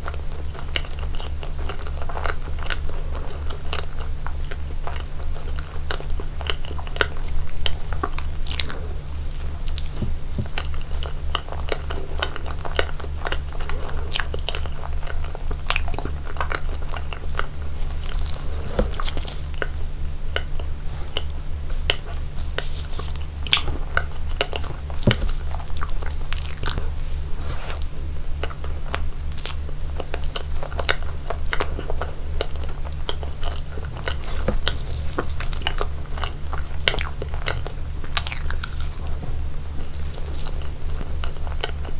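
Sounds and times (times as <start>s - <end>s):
low electrical hum: 0.0s - 41.9s
person chewing cake: 0.0s - 41.9s
light crunch: 17.4s - 19.8s.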